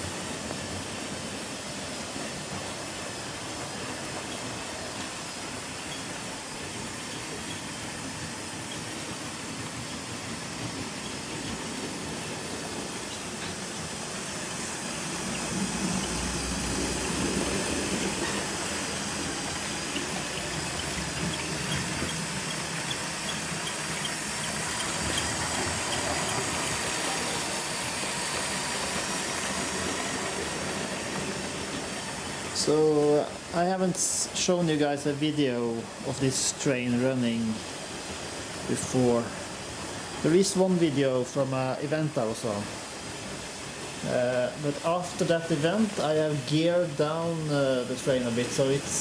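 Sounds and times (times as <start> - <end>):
toy train motor humming: 0.0 - 33.4
wheels rolling on plastic track: 3.8 - 32.7.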